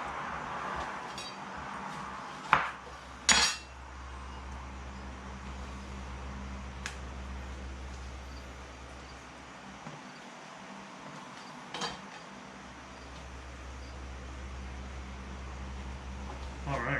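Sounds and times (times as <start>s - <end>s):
kitchenware clinking: 3.3s - 3.8s, 11.7s - 12.2s.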